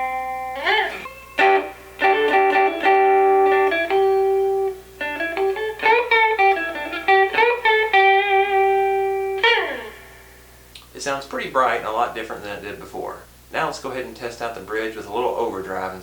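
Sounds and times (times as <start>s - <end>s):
clean electric guitar riff: 0.0s - 10.7s.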